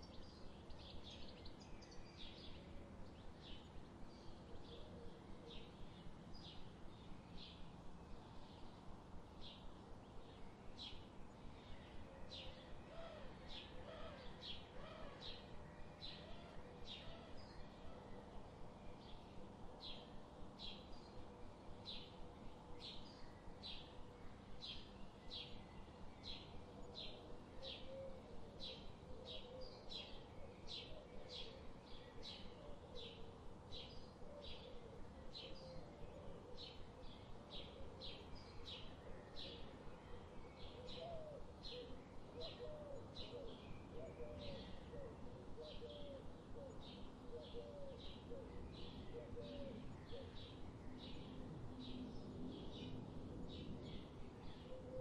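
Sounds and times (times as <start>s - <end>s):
songbird high chirps: 0.0s - 7.8s
faint background hiss: 0.0s - 55.0s.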